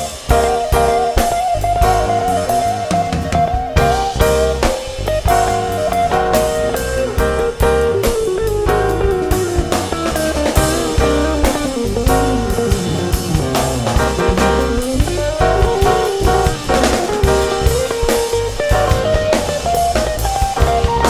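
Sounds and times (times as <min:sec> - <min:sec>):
drum kit beat: 0:00.0 - 0:21.0
electric guitar: 0:00.0 - 0:21.0.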